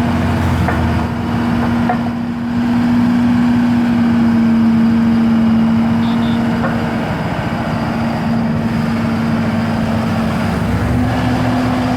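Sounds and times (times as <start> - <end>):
road roller diesel engine: 0.0 - 11.9.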